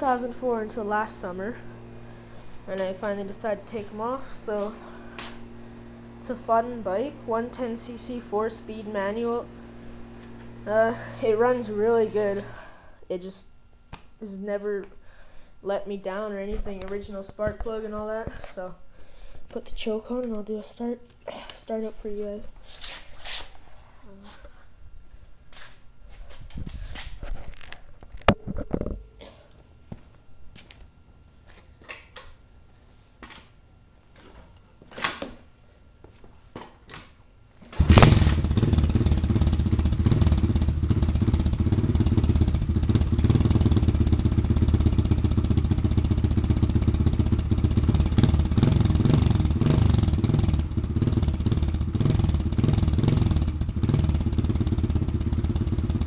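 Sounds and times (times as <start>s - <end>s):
dirt bike engine starting: 0.0s - 12.8s, 37.7s - 56.0s.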